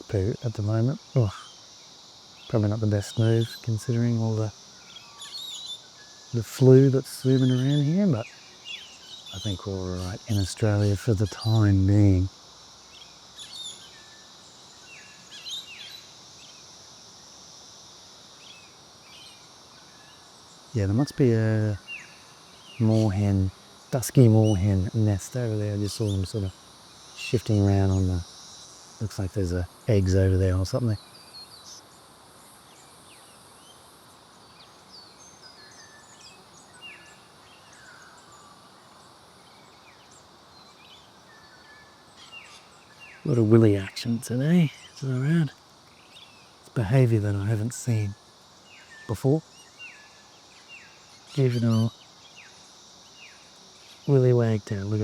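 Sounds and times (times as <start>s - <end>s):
small birds chirping: 0.0s - 17.5s, 18.2s - 55.0s
insects droning: 0.0s - 55.0s.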